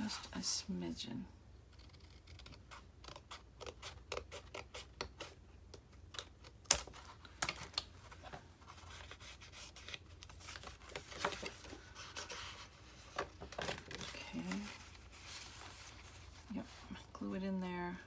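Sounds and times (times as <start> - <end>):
fabric rustling: 8.1 - 17.2.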